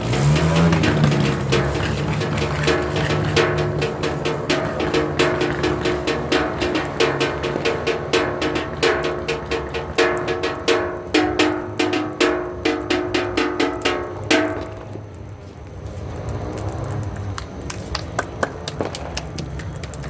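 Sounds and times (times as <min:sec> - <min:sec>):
clanging on ringing metal: 0:00.0 - 0:15.1.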